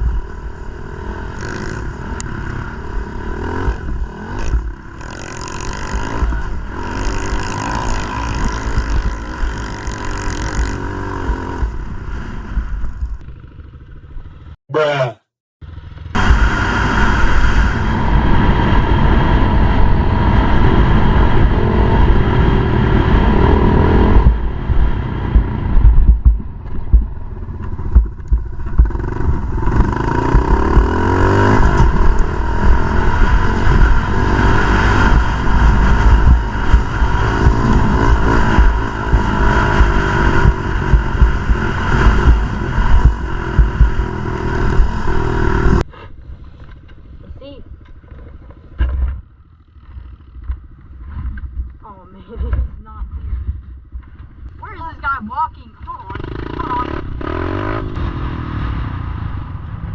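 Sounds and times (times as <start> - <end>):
motorbike engine revving: 0.0 - 45.9, 54.6 - 59.9
wind buffeting microphone: 16.2 - 45.9.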